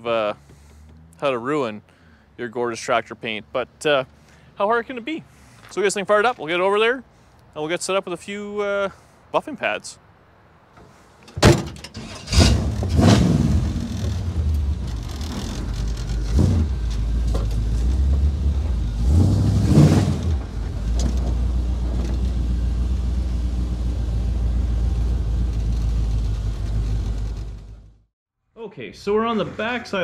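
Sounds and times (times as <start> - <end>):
car engine starting and revving: 11.8 - 28.0.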